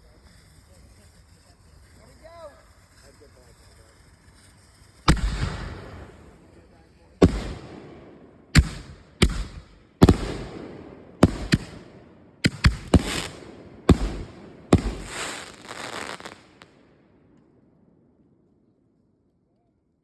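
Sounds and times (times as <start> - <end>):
firework crackling: 0.0 - 16.9
firework bangs: 0.3 - 16.8.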